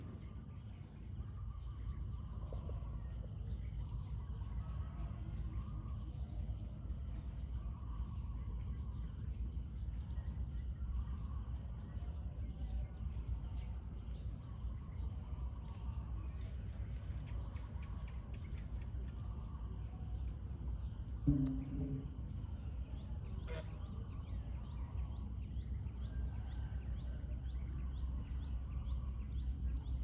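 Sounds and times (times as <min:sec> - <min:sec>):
continuous low rumble: 0:00.0 - 0:30.0
high insect chorus: 0:00.0 - 0:30.0
geese and ducks calling: 0:23.3 - 0:24.0.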